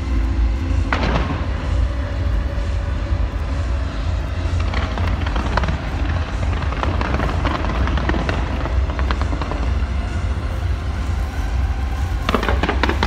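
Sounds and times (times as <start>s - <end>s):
fireworks booming: 0.5s - 13.0s
fireworks crackling pops: 0.7s - 2.0s, 4.5s - 13.0s.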